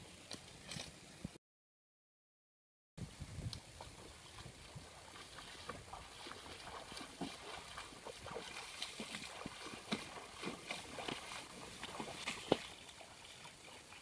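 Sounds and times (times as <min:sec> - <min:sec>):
small splashes in water: 0:03.8 - 0:14.0.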